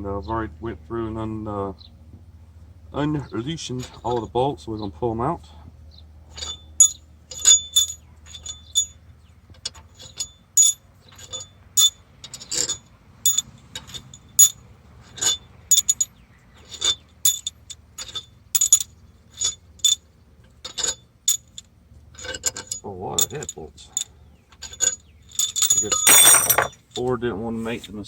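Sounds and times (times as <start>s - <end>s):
metal bolts clinking: 9.7s - 20.0s, 24.6s - 27.0s.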